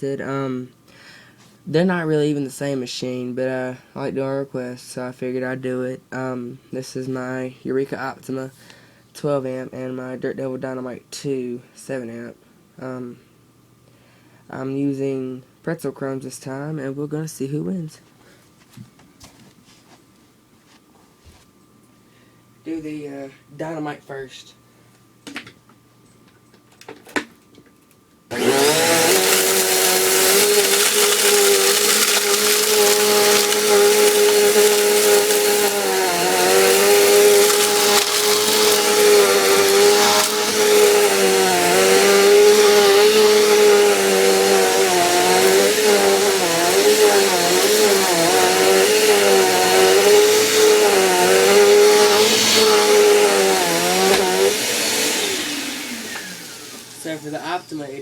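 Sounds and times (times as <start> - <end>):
vacuum cleaner motor whining: 28.3 - 57.9.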